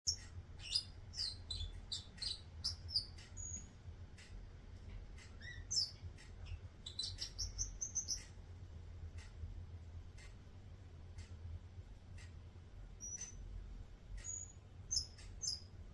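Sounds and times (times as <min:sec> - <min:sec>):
low steady hum: 0:00.1 - 0:15.9
parrot chirping and whistling: 0:00.6 - 0:03.7.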